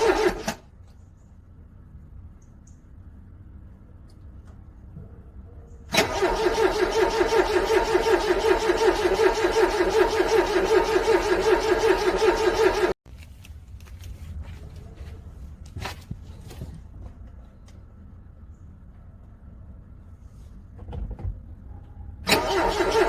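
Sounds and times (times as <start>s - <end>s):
car engine cranking: 0.0s - 0.7s, 5.9s - 13.0s, 22.2s - 23.0s.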